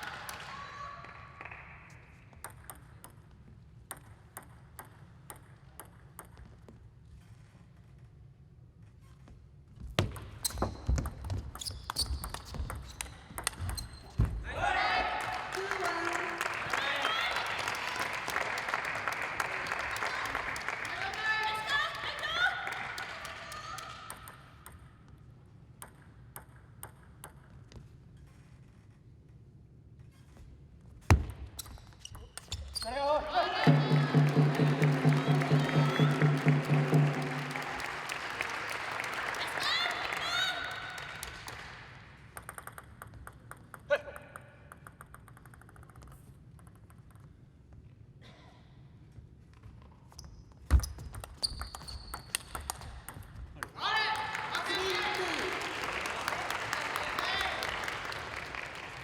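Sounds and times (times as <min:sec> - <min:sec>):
table tennis ball pinging: 0:02.3 - 0:06.9, 0:10.0 - 0:14.4, 0:24.1 - 0:27.9, 0:42.2 - 0:47.3, 0:50.7 - 0:53.8
hall noise: 0:33.6 - 0:38.6.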